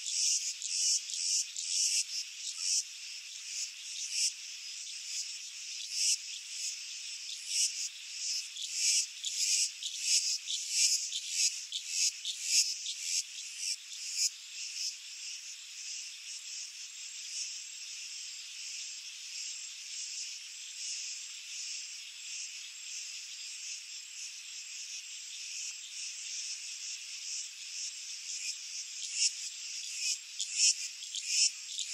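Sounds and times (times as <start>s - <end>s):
insects buzzing: 0.0s - 31.9s.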